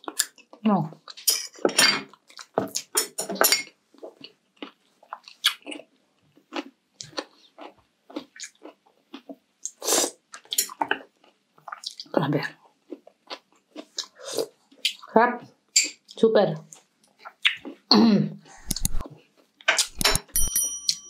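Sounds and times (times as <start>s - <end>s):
wet chewing: 4.0s - 15.0s, 15.8s - 17.9s.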